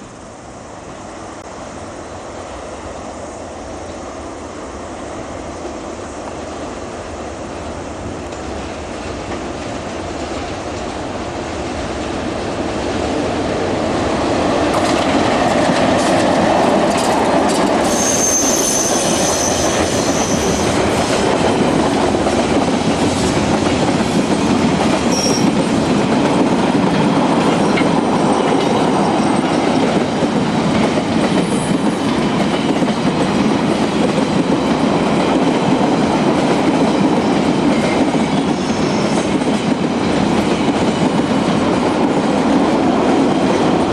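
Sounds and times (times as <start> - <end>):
freight train wagons clattering: 14.7 - 35.6
high-pitched squeal: 17.8 - 21.0.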